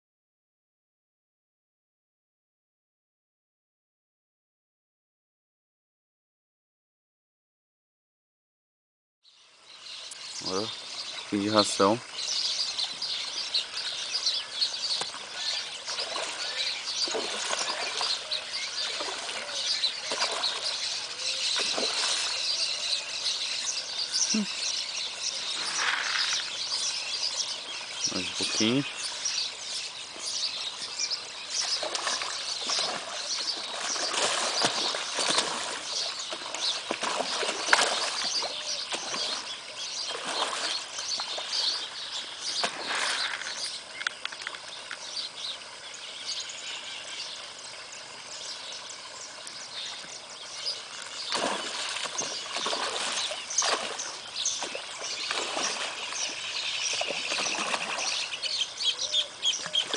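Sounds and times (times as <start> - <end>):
birds chirping: 9.3 - 59.9
splashing on water surface: 12.8 - 22.7, 25.4 - 26.9, 31.5 - 45.0, 51.0 - 58.4.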